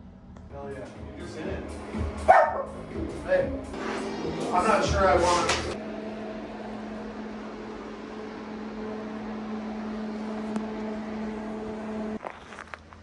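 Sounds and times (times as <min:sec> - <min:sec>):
machine hum with hiss: 0:03.7 - 0:12.2.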